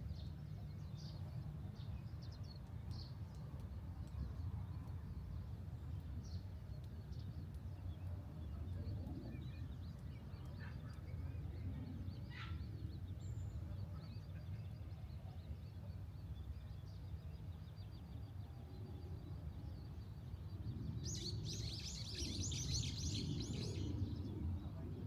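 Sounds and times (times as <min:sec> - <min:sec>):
small birds chirping: 0:19.1 - 0:25.0.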